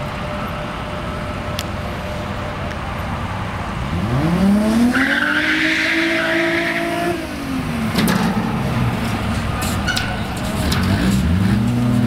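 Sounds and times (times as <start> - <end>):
car engine accelerating hard: 10.6 - 12.0.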